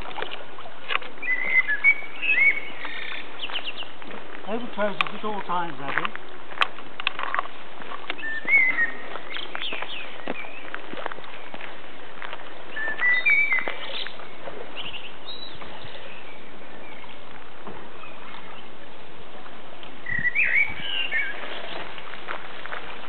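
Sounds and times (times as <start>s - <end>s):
small birds singing: 1.2s - 5.4s, 8.1s - 11.8s, 12.7s - 17.3s, 17.9s - 18.8s, 20.0s - 22.0s.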